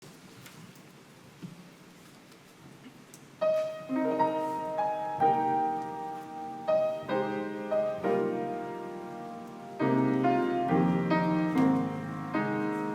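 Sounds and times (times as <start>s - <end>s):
faint room noise: 0.0s - 12.9s
piano playing hymn chords: 3.4s - 12.9s.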